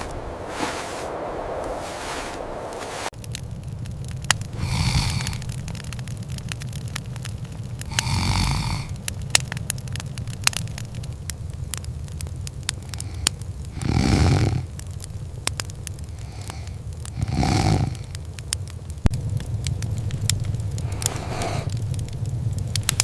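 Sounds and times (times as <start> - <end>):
wood fire crackling and popping: 0.0 - 23.0
breathy snore-like breaths: 4.5 - 5.5, 7.9 - 9.0, 12.9 - 14.7, 16.1 - 18.2, 20.9 - 21.7
low steady rumble: 18.1 - 23.0.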